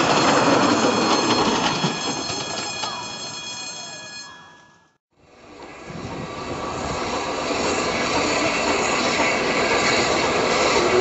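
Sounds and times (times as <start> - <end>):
steam trains rumbling: 0.0 - 3.3, 5.2 - 11.0
miniature train squealing: 0.0 - 4.0, 7.2 - 11.0.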